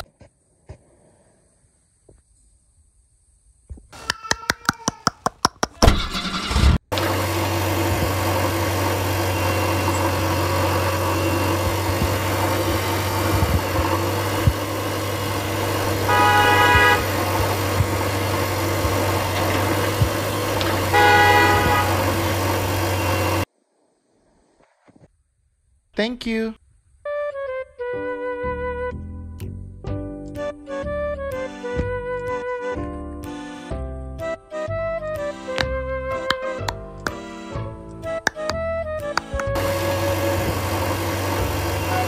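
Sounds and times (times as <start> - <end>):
engine cranking clicks: 5.2 - 7.1
horn honking: 5.8 - 23.5, 39.2 - 42.0
vehicle engine running: 5.9 - 23.5, 39.0 - 42.0.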